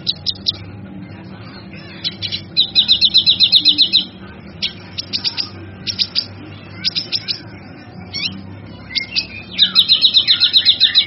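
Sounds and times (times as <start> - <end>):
fast bird trill: 0.0 - 0.7, 1.7 - 11.0
steady low hum: 0.0 - 11.0
bird chips: 1.8 - 7.5, 8.1 - 11.0.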